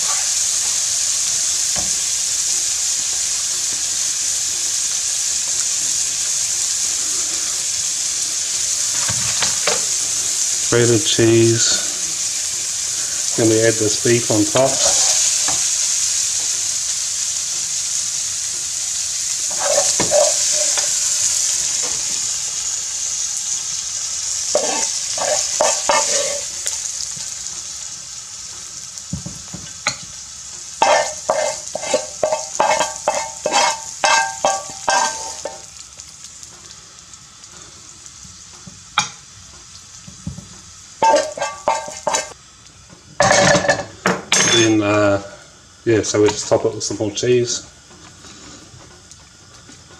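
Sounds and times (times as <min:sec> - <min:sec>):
meat sizzling in a frying pan: 0:00.0 - 0:49.9
utensil scraping a pan: 0:08.9 - 0:10.0, 0:13.0 - 0:15.7, 0:19.4 - 0:22.2, 0:24.5 - 0:26.6, 0:30.8 - 0:35.7, 0:41.0 - 0:42.4.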